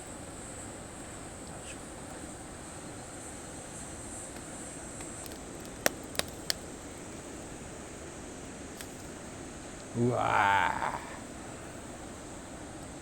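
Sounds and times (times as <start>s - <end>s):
campfire hiss: 0.0s - 13.0s
campfire pops: 4.3s - 8.0s, 8.6s - 11.1s.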